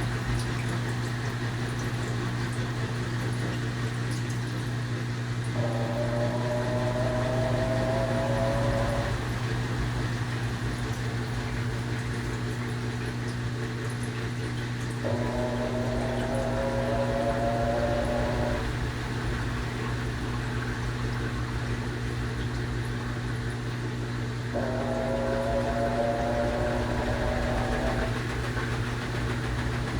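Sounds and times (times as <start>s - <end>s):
washing machine motor hum: 0.0s - 29.9s
whining tone: 5.6s - 10.0s, 15.0s - 19.1s, 24.5s - 29.7s.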